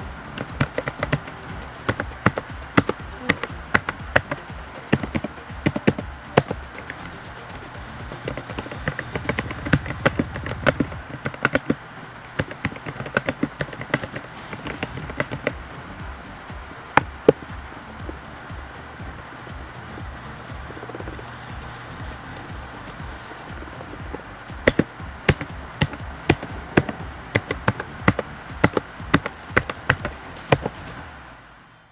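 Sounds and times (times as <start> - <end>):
mechanical keyboard keys clacking: 12.4 - 15.7.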